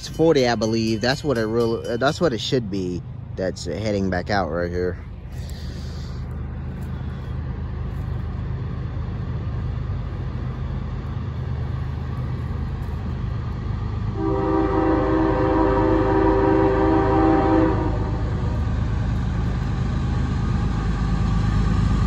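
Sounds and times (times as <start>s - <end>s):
diesel locomotive engine rumble: 0.0s - 22.0s
locomotive air horn chord: 14.2s - 18.6s.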